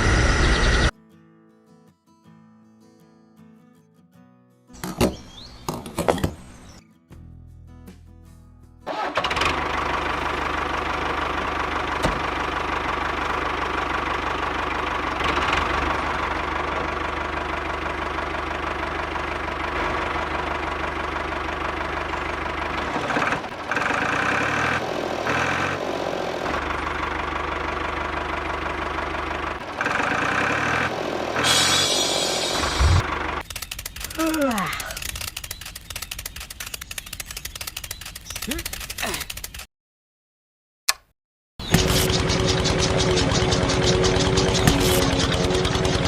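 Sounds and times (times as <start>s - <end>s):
small engine running: 0.0s - 0.9s, 8.9s - 39.7s, 41.6s - 46.0s.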